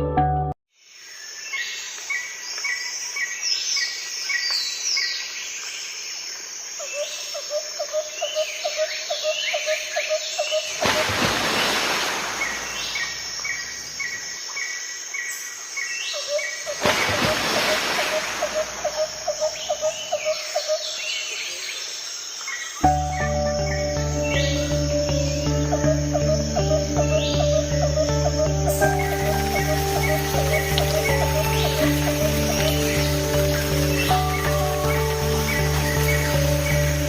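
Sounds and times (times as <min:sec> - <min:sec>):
birds chirping: 0:08.1 - 0:37.0
low repeated bird call: 0:16.1 - 0:21.7, 0:22.8 - 0:37.0.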